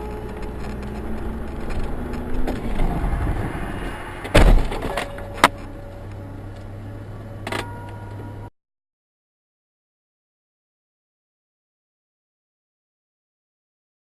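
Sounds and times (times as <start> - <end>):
car road noise: 0.0 - 8.5
loud crash impact: 2.8 - 5.2.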